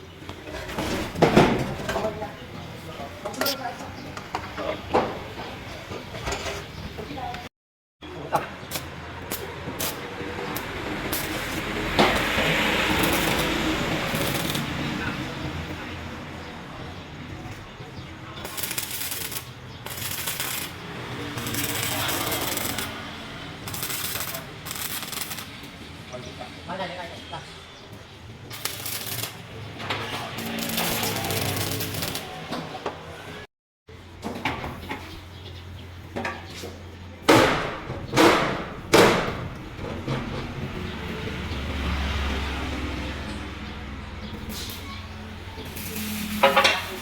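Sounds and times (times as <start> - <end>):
harsh metal scraping bursts: 9.8 - 15.0, 18.4 - 25.6, 28.5 - 32.5, 44.3 - 47.0.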